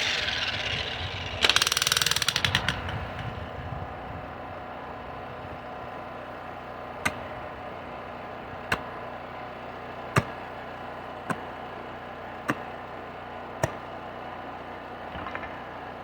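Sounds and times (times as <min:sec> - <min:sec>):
demolition hammer chiselling soil: 0:00.0 - 0:03.3, 0:05.6 - 0:15.9.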